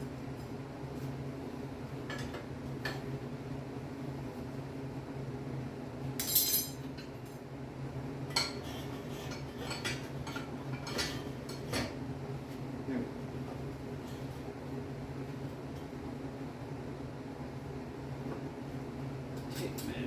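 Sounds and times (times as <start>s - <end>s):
metallic clinks and clanks: 6.2s - 6.8s.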